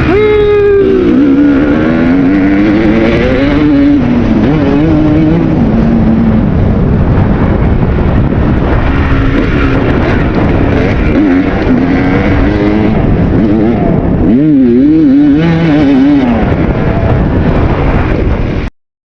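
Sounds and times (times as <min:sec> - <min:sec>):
dirt bike engine revving: 0:00.0 - 0:18.4
dense rushing noise: 0:00.0 - 0:18.7.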